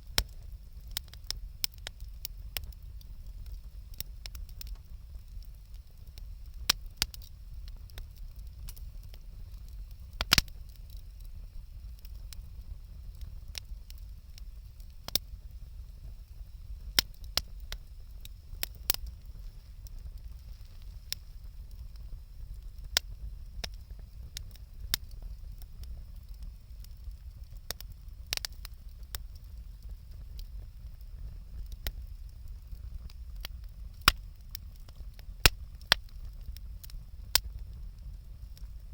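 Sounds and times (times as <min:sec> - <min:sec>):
campfire crackling: 0:00.0 - 0:38.9.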